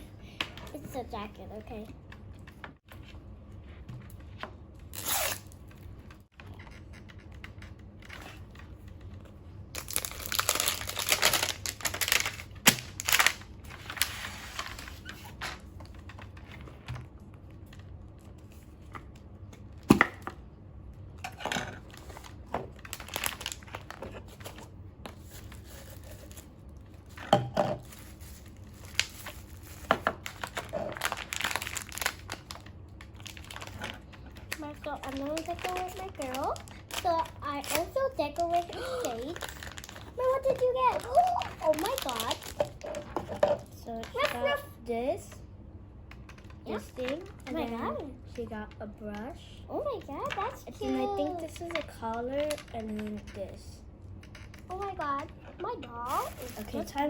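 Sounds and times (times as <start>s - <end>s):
plastic packaging crinkling and tearing: 4.9s - 5.7s, 9.7s - 15.4s, 21.8s - 27.2s, 27.8s - 43.4s, 50.2s - 53.0s, 55.6s - 57.0s.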